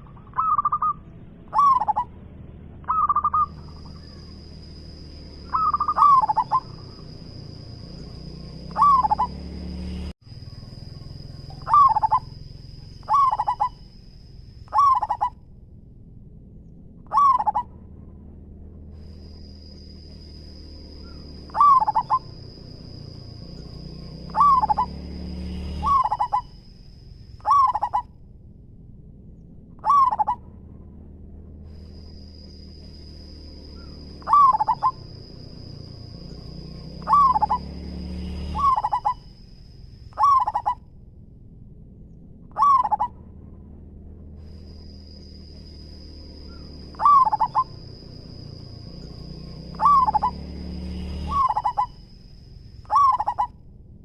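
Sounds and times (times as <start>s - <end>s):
dove cooing: 0.0s - 2.1s, 2.8s - 4.5s, 5.5s - 7.3s, 8.0s - 9.4s, 11.2s - 13.8s, 14.7s - 15.4s, 17.1s - 17.7s, 21.0s - 23.0s, 24.2s - 25.0s, 25.8s - 26.5s, 27.4s - 28.1s, 29.8s - 30.4s, 33.8s - 35.7s, 37.0s - 37.8s, 38.6s - 39.2s, 40.2s - 40.8s, 42.5s - 43.2s, 46.5s - 48.4s, 49.7s - 50.5s, 51.2s - 52.0s, 52.9s - 53.5s.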